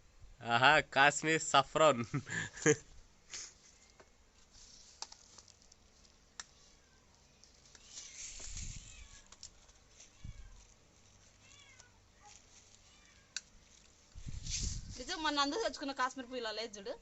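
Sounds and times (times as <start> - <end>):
rustle of handling: 2.2 - 16.2
kitten meowing: 7.8 - 9.3, 11.4 - 13.5.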